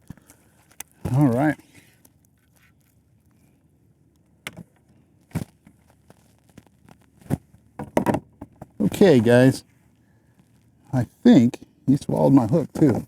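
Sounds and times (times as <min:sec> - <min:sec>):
knocks on plastic kayak: 0:07.8 - 0:08.7.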